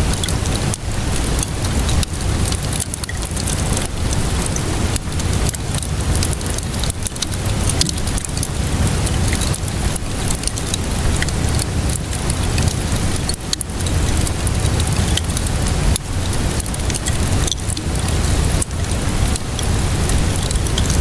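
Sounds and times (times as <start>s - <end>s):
steady rainfall: 0.0s - 21.0s
wood fire crackling: 0.0s - 21.0s.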